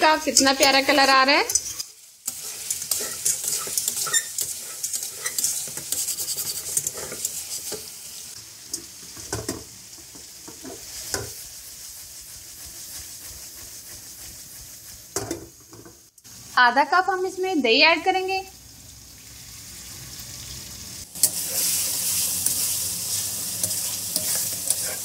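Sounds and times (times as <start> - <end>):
food sizzling in oil: 0.0 - 25.0
metal spatula scraping pan: 0.3 - 8.0, 21.2 - 25.0.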